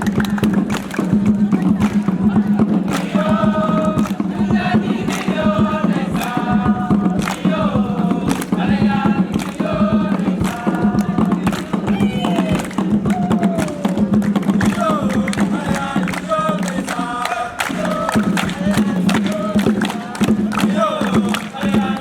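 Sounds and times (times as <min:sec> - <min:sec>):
group singing a chant: 0:00.0 - 0:22.0
sharp percussive beats: 0:00.0 - 0:22.0.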